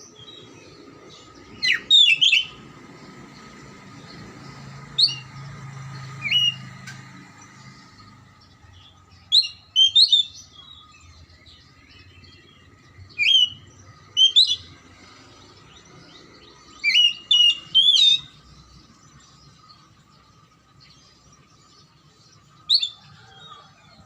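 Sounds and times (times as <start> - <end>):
bird singing whistled notes: 0.0 - 2.7, 4.0 - 24.0.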